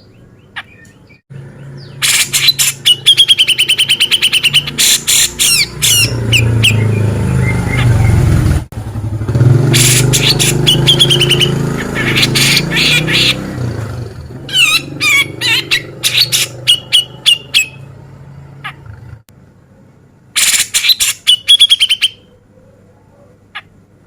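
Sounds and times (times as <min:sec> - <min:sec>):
bulbul harsh rasping calls: 0:01.6 - 0:08.5, 0:09.5 - 0:18.0, 0:20.4 - 0:22.8
sharp whistled bird notes: 0:02.0 - 0:08.3, 0:09.7 - 0:13.4.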